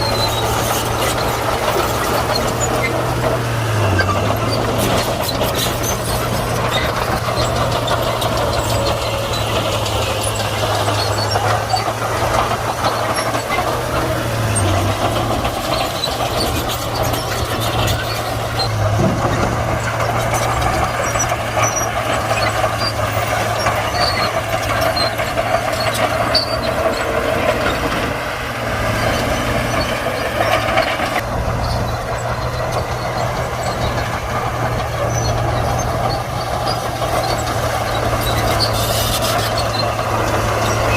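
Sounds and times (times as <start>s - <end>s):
bulldozer diesel engine: 0.0s - 40.9s.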